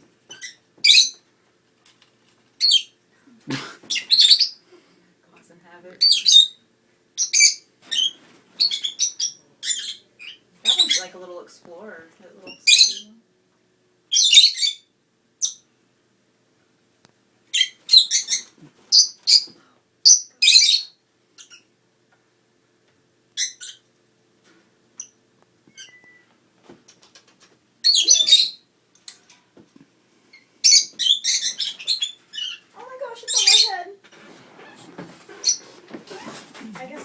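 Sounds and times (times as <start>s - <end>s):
lovebirds chirping: 3.8s - 4.6s, 6.0s - 11.2s, 12.4s - 13.2s, 14.1s - 15.7s, 17.5s - 21.7s, 27.4s - 28.7s, 30.3s - 34.0s.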